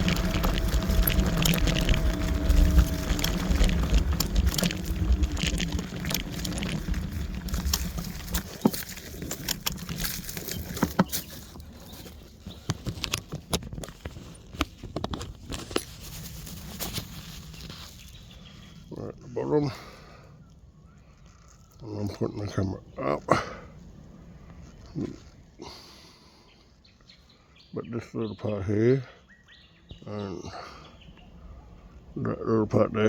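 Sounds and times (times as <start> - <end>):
faint motor whine: 0.0 - 12.7
scattered crackles and taps: 0.0 - 18.5
wind and tyre rumble: 0.0 - 28.0, 29.4 - 33.0.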